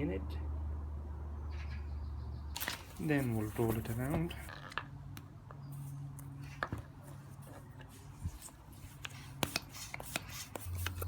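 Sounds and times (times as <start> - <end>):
football handled in hands: 2.6 - 4.9, 6.5 - 9.5.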